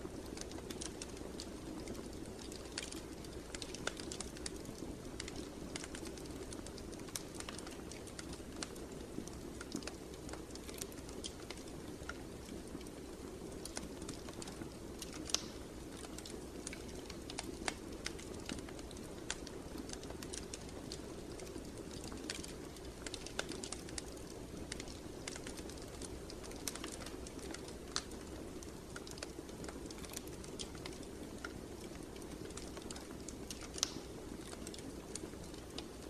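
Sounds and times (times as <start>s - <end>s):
fire pops and snaps: 0.0s - 36.0s.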